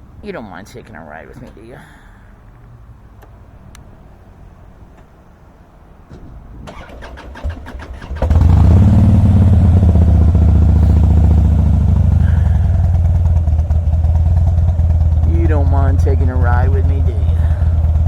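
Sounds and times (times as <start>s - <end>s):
motorcycle engine idling: 6.7s - 18.0s
starter cranking: 6.7s - 18.0s.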